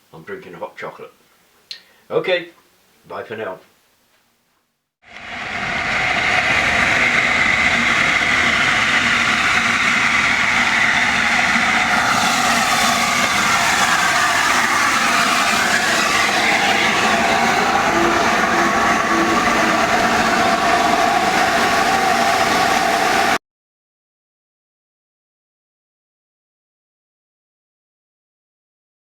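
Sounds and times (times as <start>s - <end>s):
train wheels on rails: 5.1s - 23.4s.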